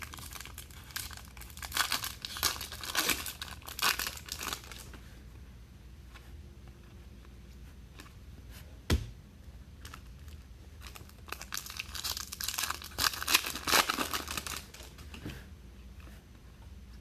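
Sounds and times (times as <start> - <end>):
foil wrapper tearing and crinkling: 0.0 - 4.9, 9.9 - 14.9.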